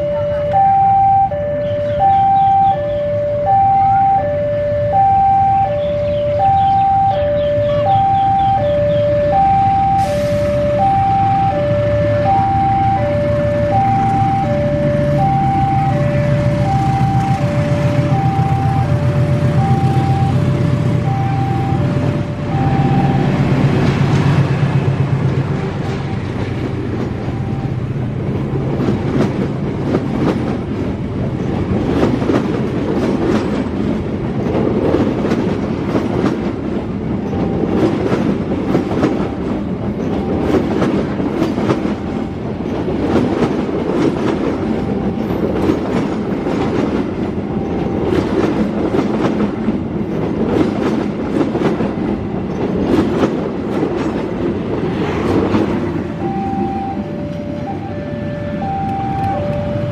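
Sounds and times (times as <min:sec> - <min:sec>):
steel wheels rumbling on rail: 0:01.6 - 0:59.9
wheels clacking over rail joints: 0:13.8 - 0:56.2.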